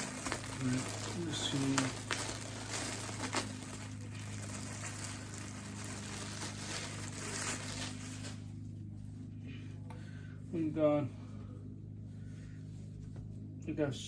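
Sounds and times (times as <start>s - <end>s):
packaging rustling and crinkling: 0.0s - 8.5s
low electrical hum: 0.0s - 14.0s.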